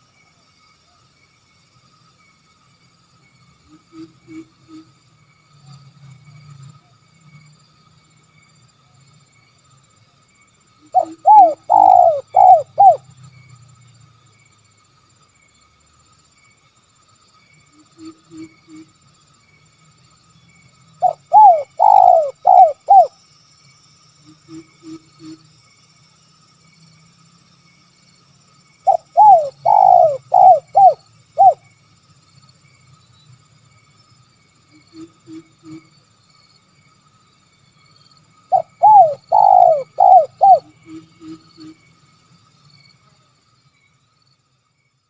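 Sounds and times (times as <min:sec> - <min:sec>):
dove cooing: 0:10.9 - 0:13.0, 0:21.0 - 0:23.1, 0:28.9 - 0:31.6, 0:38.5 - 0:40.7.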